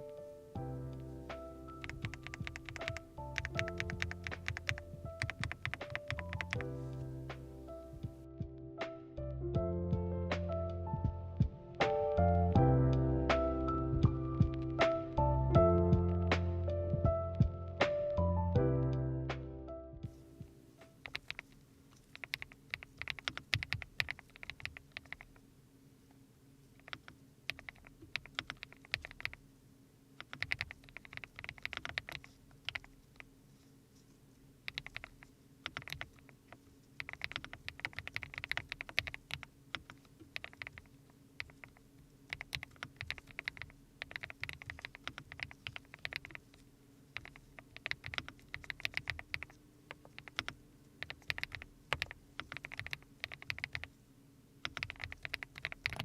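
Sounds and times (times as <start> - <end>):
mechanical keyboard typing: 1.7 - 6.7, 20.9 - 25.4, 26.8 - 29.4, 30.2 - 33.3, 34.6 - 53.9, 54.6 - 56.0.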